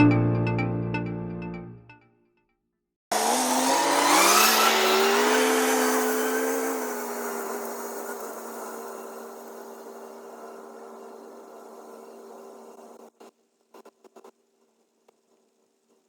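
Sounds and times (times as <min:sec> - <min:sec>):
engine starting and running: 0:03.1 - 0:11.5.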